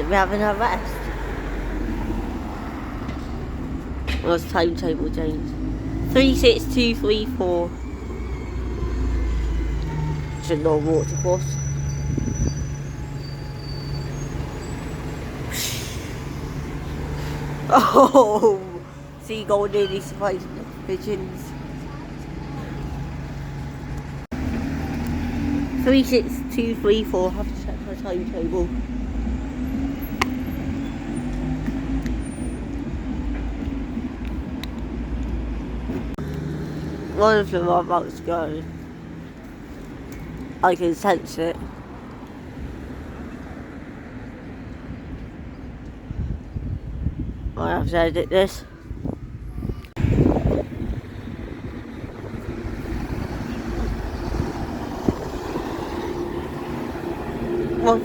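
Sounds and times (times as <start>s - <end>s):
bus engine idling: 0.0s - 36.2s
wind buffeting microphone: 11.8s - 13.5s, 44.8s - 58.0s.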